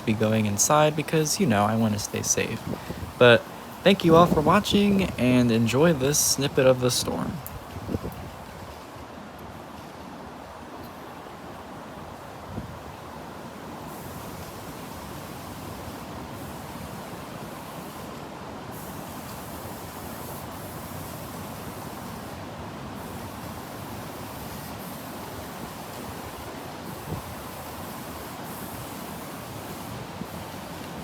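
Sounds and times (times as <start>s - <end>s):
strong wind rushing: 2.1s - 5.3s.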